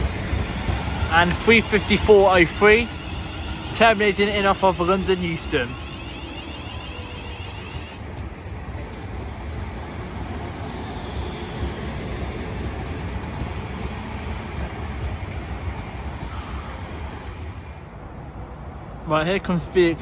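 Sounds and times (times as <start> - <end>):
train wheels rumbling on rails: 0.0 - 18.1.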